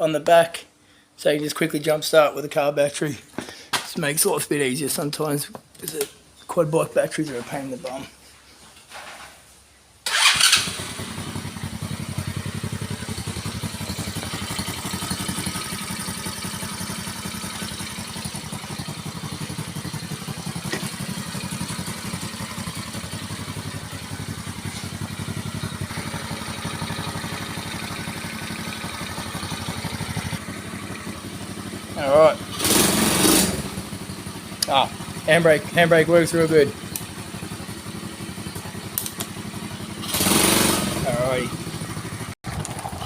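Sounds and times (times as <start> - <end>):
quad bike engine idling: 10.1 - 43.0.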